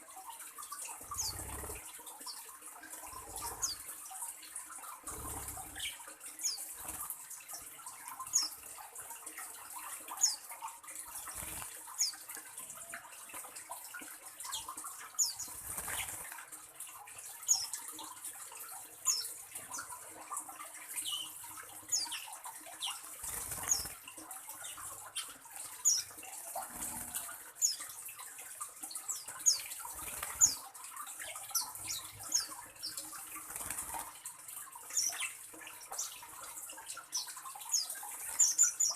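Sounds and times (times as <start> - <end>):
small bird chirping: 1.1 - 2.4, 10.2 - 10.4, 21.0 - 24.0.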